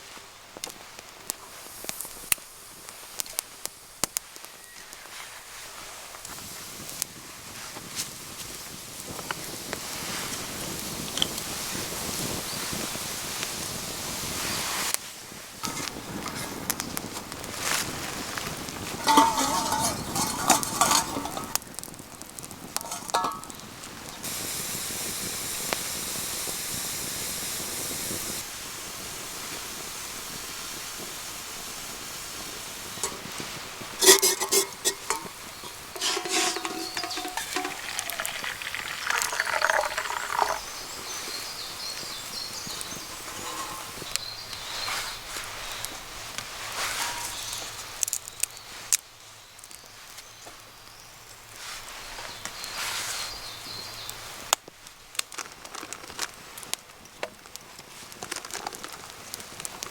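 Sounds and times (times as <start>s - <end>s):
food sizzling in a pan: 0.8s - 18.4s, 19.0s - 21.7s, 22.8s - 48.1s
metal utensil scraping a pan: 15.6s - 16.8s, 19.0s - 21.6s, 22.8s - 23.6s, 33.0s - 40.6s, 42.6s - 44.8s, 46.8s - 47.7s.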